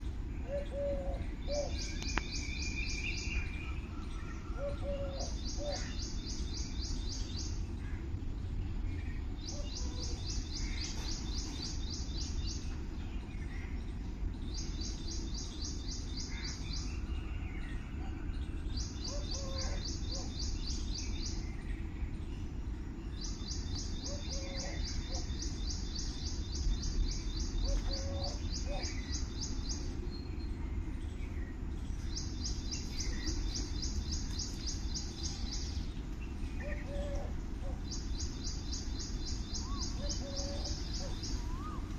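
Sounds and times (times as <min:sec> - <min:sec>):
birds calling: 0:00.0 - 0:41.9
low background rumble: 0:00.0 - 0:41.9
bird trilling: 0:39.5 - 0:41.9.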